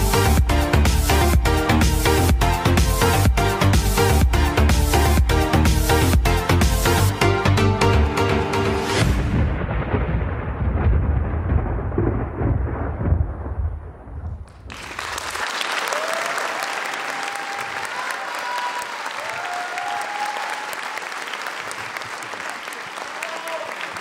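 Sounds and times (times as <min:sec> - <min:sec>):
audience applauding: 0:14.5 - 0:24.0
people cheering: 0:14.7 - 0:24.0.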